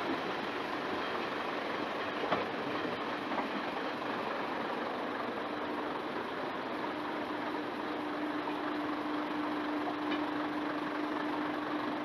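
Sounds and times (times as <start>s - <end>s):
diesel railcar engine hum: 0.0s - 12.0s
wheels rumbling on rails: 0.0s - 12.0s
train knock: 2.0s - 3.7s.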